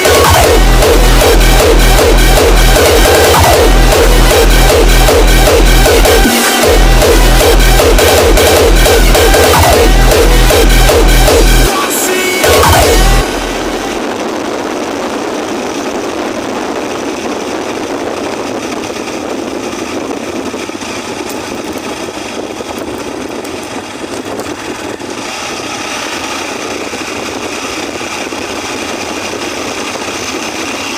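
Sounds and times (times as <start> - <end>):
motorcycle engine running: 0.0 - 11.8, 12.4 - 30.9
wind noise: 0.0 - 30.9.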